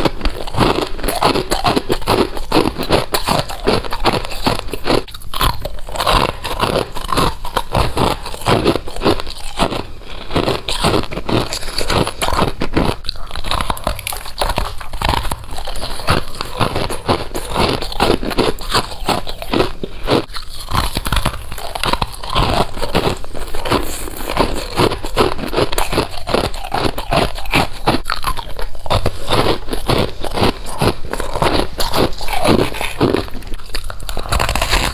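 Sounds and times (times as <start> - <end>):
crisp crunching bites: 0.0 - 34.9.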